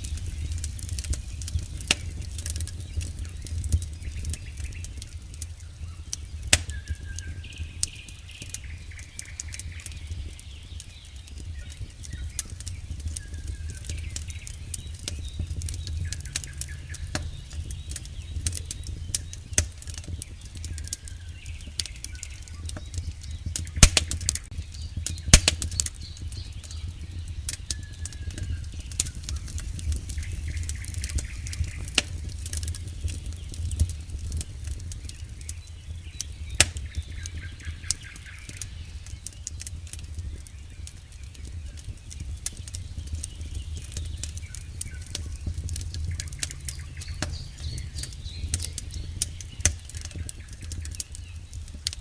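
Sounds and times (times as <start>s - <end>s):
loud fire pops: 0.0s - 52.0s
low rumble of flames: 0.0s - 52.0s
wood crackling in campfire: 0.0s - 52.0s.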